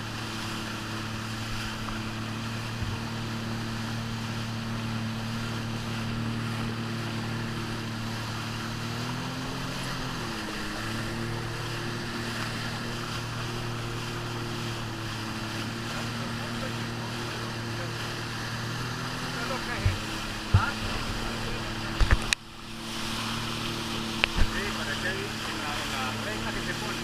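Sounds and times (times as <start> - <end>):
jet ski engine running: 0.0 - 27.0
rushing water: 0.0 - 27.0.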